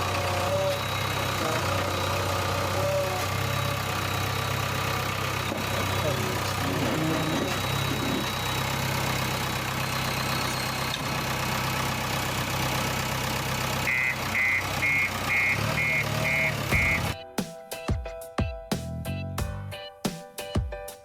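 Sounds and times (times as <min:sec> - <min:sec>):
vehicle engine humming: 0:00.0 - 0:17.2
high electronic beeper: 0:06.7 - 0:08.6, 0:13.9 - 0:17.2
music: 0:16.7 - 0:21.0.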